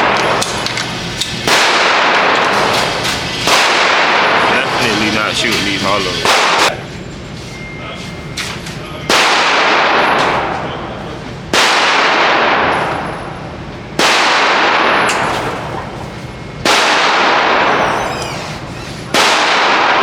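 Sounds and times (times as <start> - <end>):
gunshots with reverberation: 1.4 - 4.9, 6.2 - 6.7, 9.1 - 10.6, 11.5 - 13.1, 14.0 - 15.9, 16.6 - 18.0, 19.1 - 20.0.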